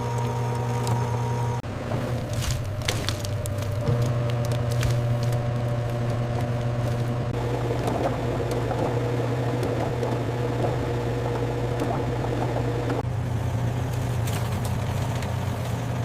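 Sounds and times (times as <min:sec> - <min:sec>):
low machine hum: 0:00.0 - 0:16.0
soft crackling or bubbling: 0:02.2 - 0:13.0.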